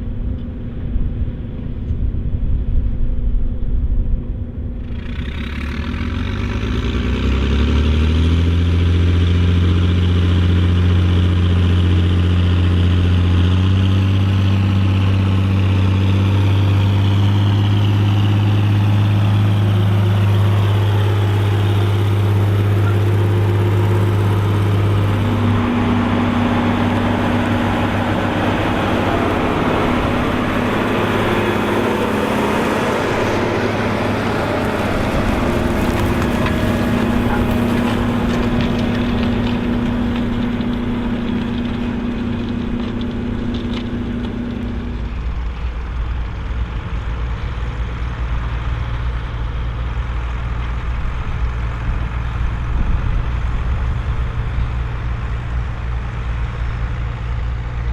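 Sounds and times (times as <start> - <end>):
tractor diesel engine under load: 4.3 - 57.9.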